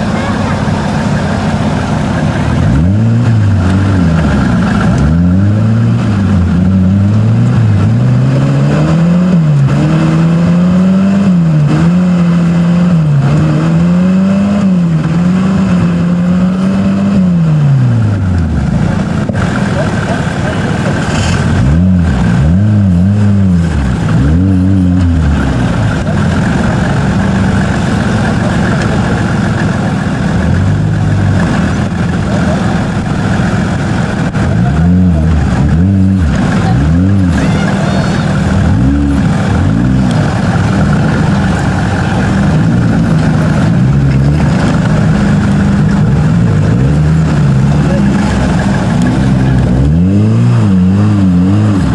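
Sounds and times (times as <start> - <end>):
off-road car engine revving: 0.0 - 51.9.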